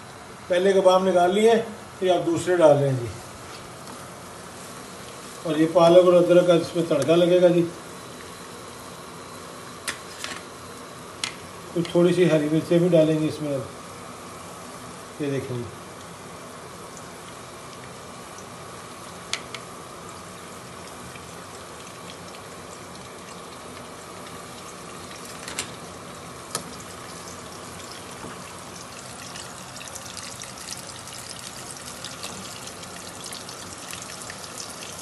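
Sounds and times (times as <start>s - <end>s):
food sizzling in frying pan: 15.9s - 35.0s.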